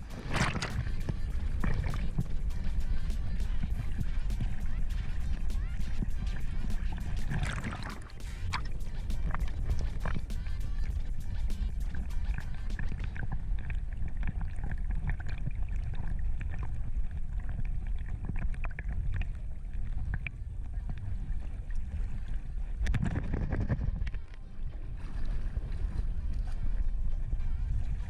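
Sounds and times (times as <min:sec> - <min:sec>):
rush of noise: 0:00.0 - 0:13.8
wind rumbling on microphone: 0:00.0 - 0:28.0.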